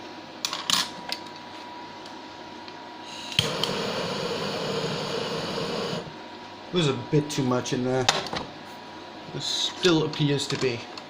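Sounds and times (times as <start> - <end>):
hissing flame: 3.0 - 6.2
gas torch clicking on: 3.1 - 6.1.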